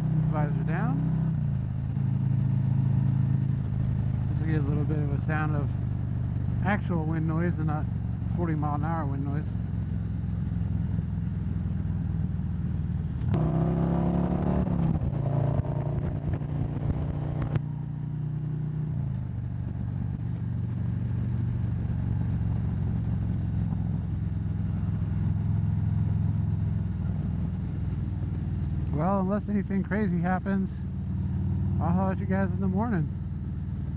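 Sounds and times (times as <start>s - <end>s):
motorcycle engine cruising: 0.0s - 33.9s
wind noise: 14.3s - 17.6s.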